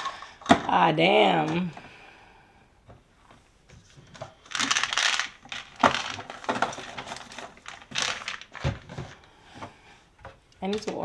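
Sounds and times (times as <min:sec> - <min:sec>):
pill containers rustling and rattling: 0:04.0 - 0:09.3, 0:10.6 - 0:11.0.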